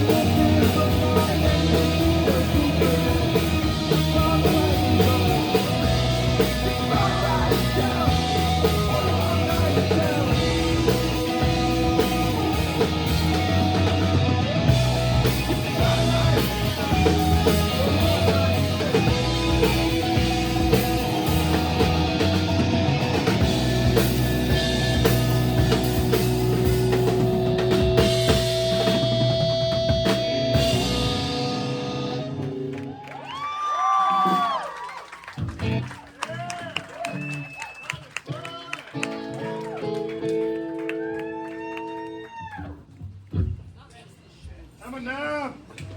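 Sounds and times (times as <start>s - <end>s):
drum kit: 0.0s - 35.9s
electric guitar: 0.0s - 36.1s, 38.8s - 43.5s
bass guitar: 0.0s - 37.7s, 38.9s - 43.7s.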